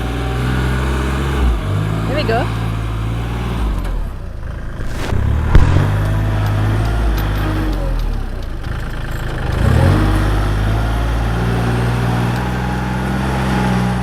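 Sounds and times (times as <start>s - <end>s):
heavy vehicle engine running: 0.0s - 14.0s.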